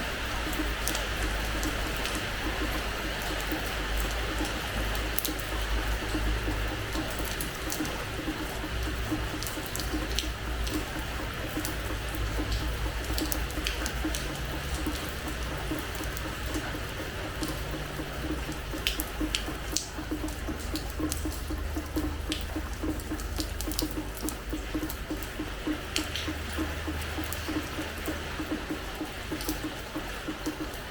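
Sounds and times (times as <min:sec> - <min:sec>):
rain on a hard floor: 0:00.0 - 0:30.9.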